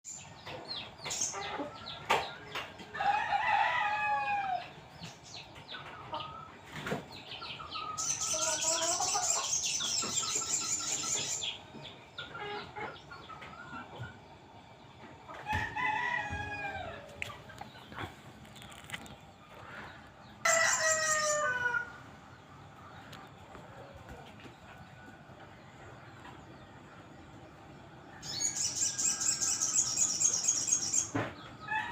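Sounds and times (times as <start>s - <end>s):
bird chattering high-pitched: 7.9s - 11.6s.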